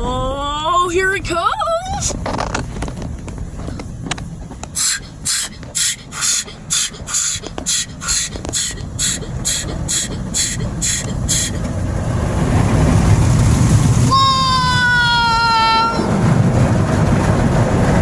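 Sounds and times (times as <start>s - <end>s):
low rumble: 0.0s - 18.0s
hissing water spray pulses: 4.7s - 17.6s.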